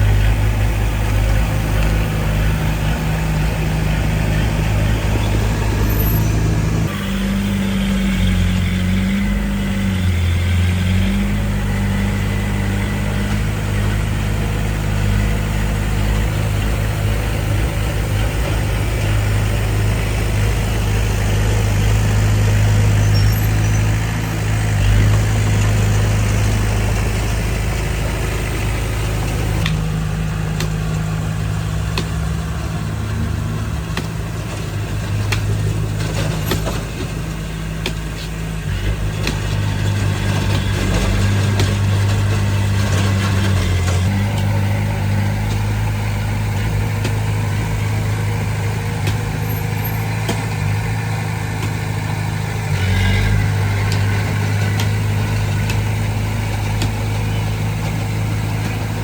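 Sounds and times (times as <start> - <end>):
heavy machinery engine running: 0.0 - 59.0.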